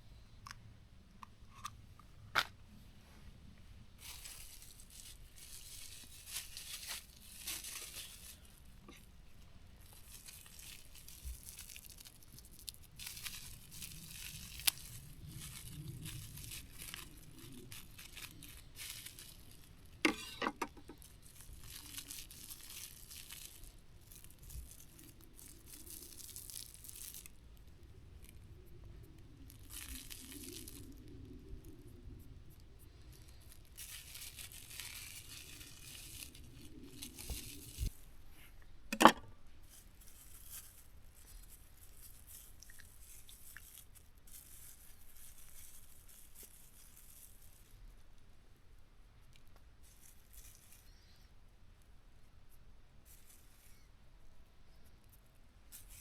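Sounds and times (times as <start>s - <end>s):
food packaging crinkling: 4.0s - 9.1s, 9.8s - 38.1s, 39.1s - 47.9s, 49.8s - 51.0s.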